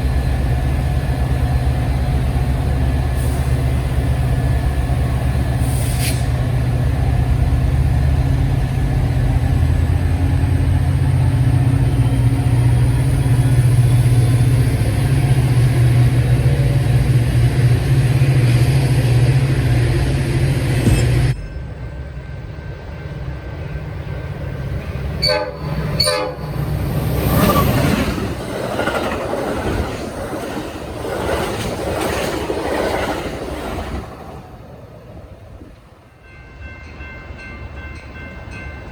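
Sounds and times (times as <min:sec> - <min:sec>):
diesel locomotive engine droning: 0:00.0 - 0:38.9
train wheels rushing on rails: 0:00.0 - 0:38.9.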